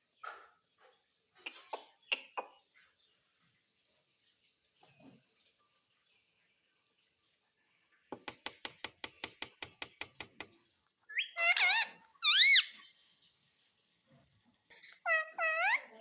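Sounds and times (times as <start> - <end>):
parrot clicks: 8.2 - 10.5
parrot screechy calls: 11.1 - 12.8, 14.8 - 16.0.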